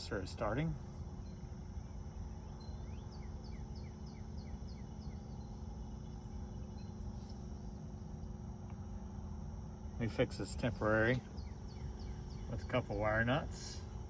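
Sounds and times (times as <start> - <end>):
heat pump unit humming: 0.0 - 14.0
bird chirping: 0.8 - 7.4, 10.4 - 14.0.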